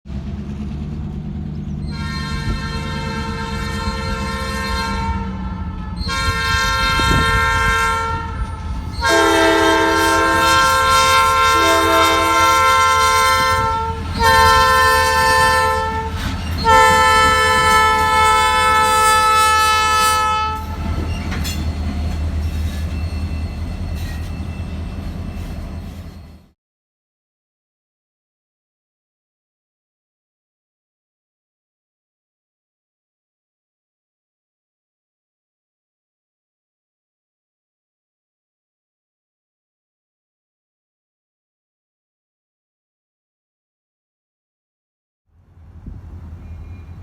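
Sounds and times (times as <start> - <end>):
locomotive engine rumble: 0.1 - 26.5
locomotive air horn blasts: 1.9 - 21.1
lower-pitched horn chord: 2.0 - 20.7.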